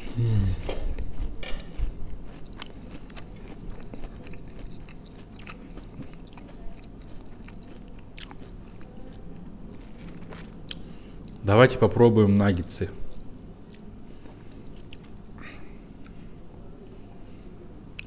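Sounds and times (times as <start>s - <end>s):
person chewing crunchy food: 0.0s - 11.4s, 13.0s - 15.2s.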